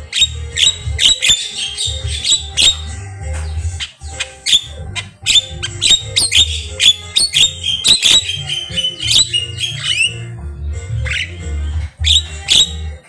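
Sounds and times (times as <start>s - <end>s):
myna calling chips and squawks: 0.0s - 10.3s.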